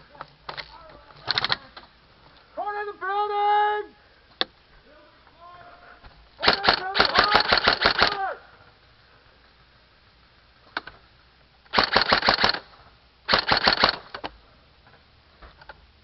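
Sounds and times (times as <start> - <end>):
airsoft gun shots: 6.4 - 8.2, 11.7 - 12.7, 13.3 - 14.3.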